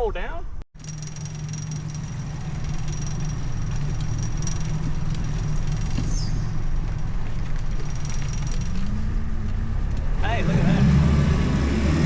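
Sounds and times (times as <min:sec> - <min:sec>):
engine humming with whine: 0:00.8 - 0:12.0.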